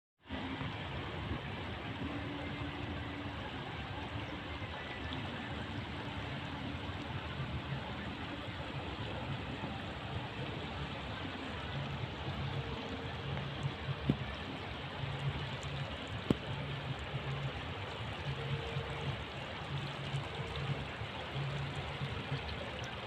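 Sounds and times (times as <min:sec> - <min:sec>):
flowing water rushing: 0:00.2 - 0:23.0.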